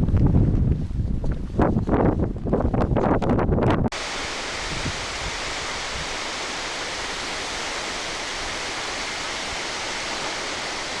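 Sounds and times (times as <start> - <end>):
steady rushing noise: 3.9 - 11.0.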